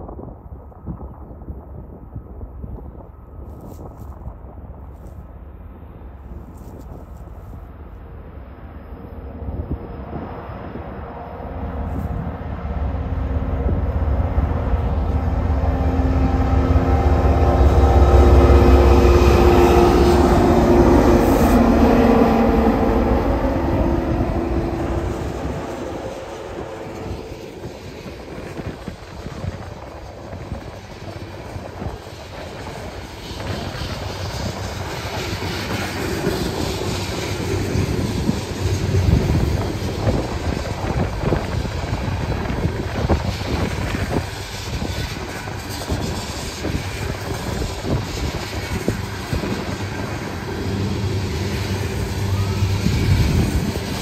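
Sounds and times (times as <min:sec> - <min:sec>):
diesel locomotive engines passing: 0:00.0 - 0:54.0
clickety-clack of train wheels: 0:13.4 - 0:54.0.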